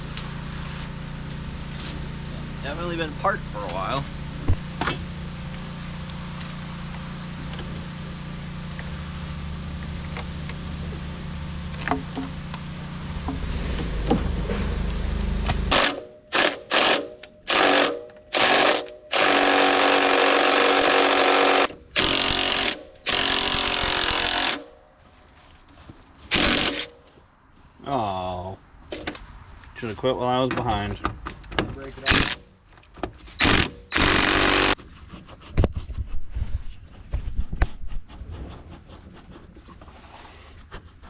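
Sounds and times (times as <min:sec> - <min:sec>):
machine noise with low hum: 0:00.0 - 0:41.0
power tool bursts: 0:15.7 - 0:24.7, 0:26.3 - 0:27.0, 0:32.0 - 0:32.4, 0:33.4 - 0:34.8.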